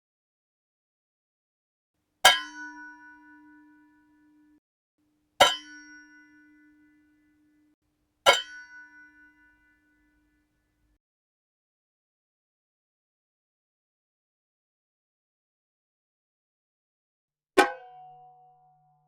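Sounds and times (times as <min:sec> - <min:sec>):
metal pot lid struck ringing: 0:02.3 - 0:04.5, 0:05.4 - 0:07.0, 0:17.6 - 0:18.4.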